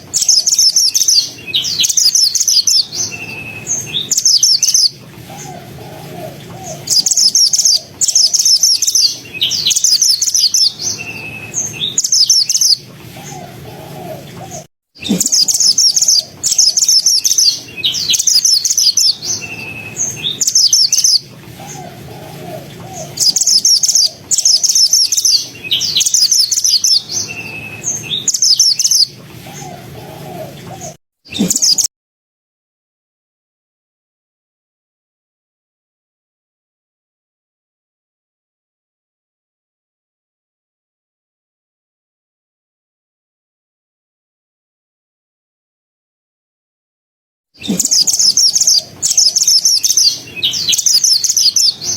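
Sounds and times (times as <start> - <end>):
bird singing rapid chattering: 0.0 - 5.6, 6.6 - 13.4, 14.5 - 31.9, 47.6 - 51.9.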